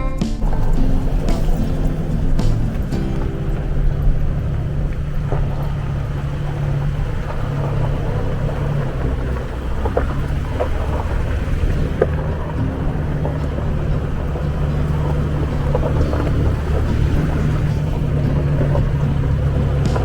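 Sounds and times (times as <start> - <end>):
light knocks and rattles: 0.4 - 20.0
off-road vehicle engine rumbling: 0.4 - 20.0.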